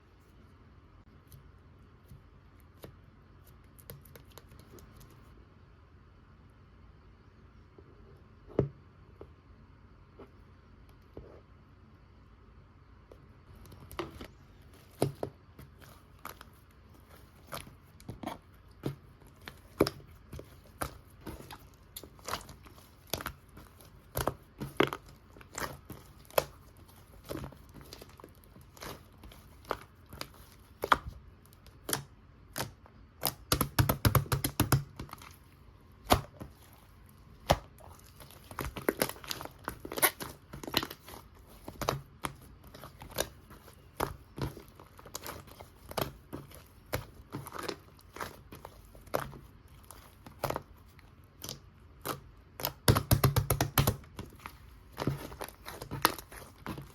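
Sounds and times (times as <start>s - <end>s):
slime pressed and pulled by hand: 13.6s - 56.9s.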